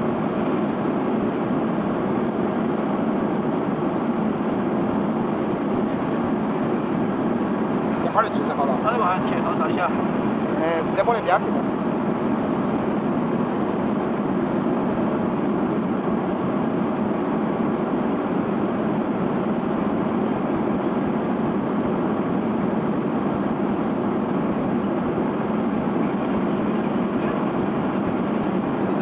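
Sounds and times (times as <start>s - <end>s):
conveyor belt running: 15.7s - 29.0s.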